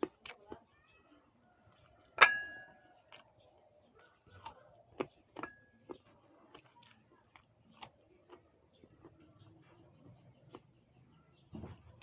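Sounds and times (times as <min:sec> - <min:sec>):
crunchy bites and chewing: 0:00.0 - 0:00.7, 0:01.6 - 0:10.8
ringing clink: 0:02.2 - 0:02.7.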